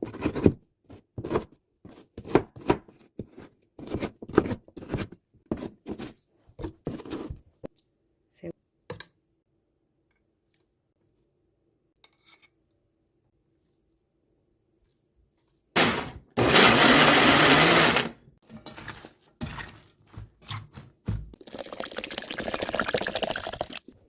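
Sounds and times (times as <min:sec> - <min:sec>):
electric blender running: 0:15.8 - 0:18.2
liquid pouring and splashing: 0:21.2 - 0:24.0.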